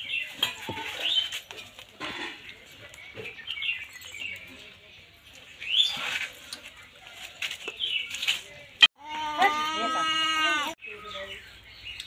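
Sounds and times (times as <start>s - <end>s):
small birds chirping: 2.4s - 8.8s, 10.4s - 12.0s.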